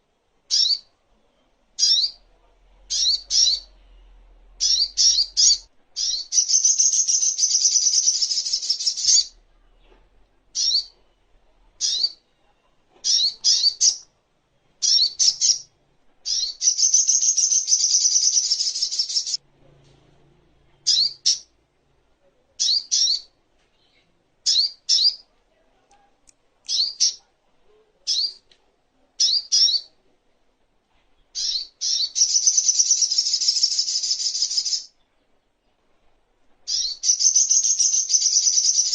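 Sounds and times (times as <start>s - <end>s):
bird trilling: 0.5s - 0.9s, 1.8s - 2.2s, 2.9s - 3.7s, 4.6s - 9.3s, 10.6s - 11.0s, 11.8s - 12.2s, 13.0s - 14.0s, 14.8s - 19.4s, 31.4s - 34.9s, 36.7s - 38.9s.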